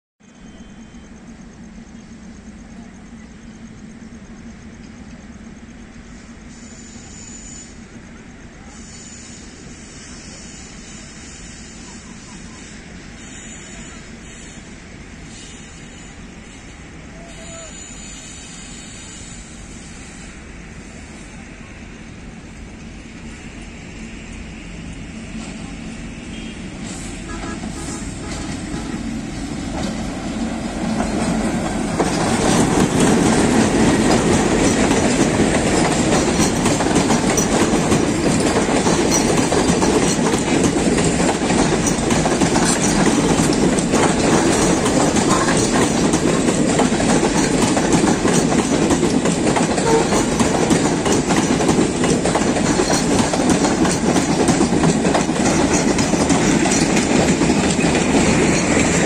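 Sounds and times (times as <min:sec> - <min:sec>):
passenger train approaching: 0:00.2 - 0:59.0
wheels clattering over rail joints: 0:26.4 - 0:59.0.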